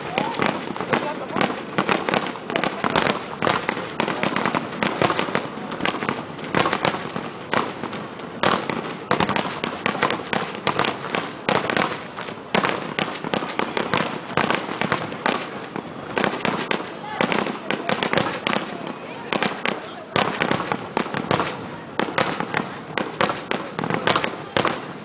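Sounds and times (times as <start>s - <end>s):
firework shells bursting: 0.0s - 25.0s.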